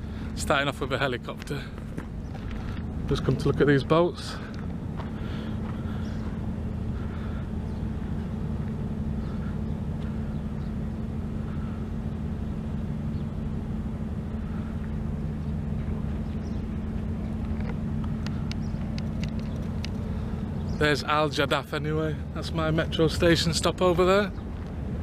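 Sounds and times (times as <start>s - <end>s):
engine hum: 0.0s - 25.0s
rumbling noise: 0.0s - 25.0s
sharp clicks: 17.4s - 20.1s.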